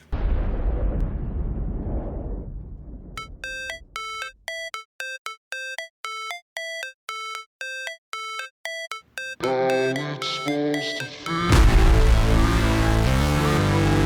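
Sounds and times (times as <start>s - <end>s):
deep noisy boom: 0.1s - 3.2s, 11.5s - 14.0s
electronic synth music: 3.2s - 14.0s.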